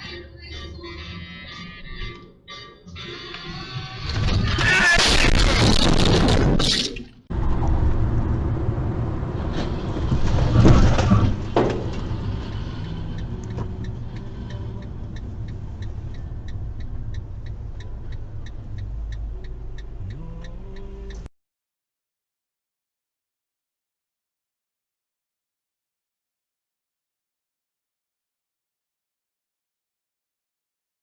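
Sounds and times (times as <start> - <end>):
music: 0.0 - 4.6
sudden crash: 4.0 - 12.8
car interior rumble: 7.3 - 21.3
regular ticking: 11.9 - 21.3.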